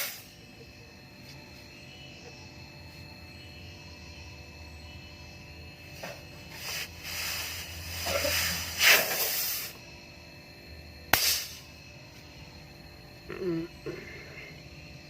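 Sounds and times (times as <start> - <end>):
pressurised gas hissing: 0.0 - 0.2, 6.5 - 9.8, 11.1 - 11.6.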